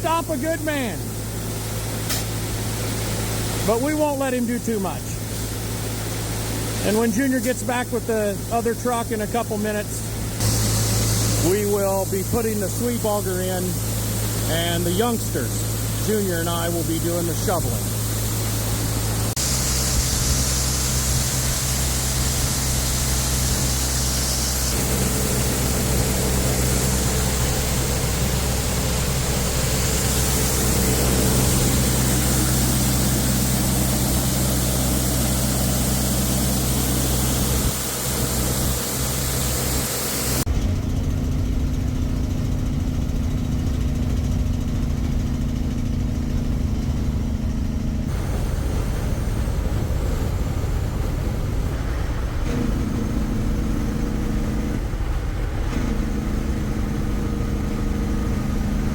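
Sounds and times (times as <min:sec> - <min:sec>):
engine running: 0:00.0 - 0:58.9.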